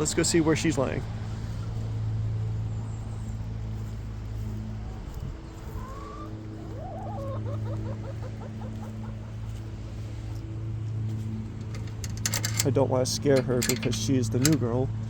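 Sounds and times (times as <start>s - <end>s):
steady low hum: 0.0s - 15.0s
hen clucking: 5.5s - 9.8s.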